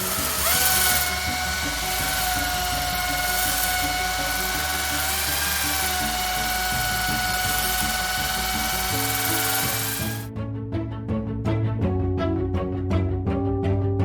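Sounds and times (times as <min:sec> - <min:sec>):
electric drill whining: 0:00.0 - 0:10.3.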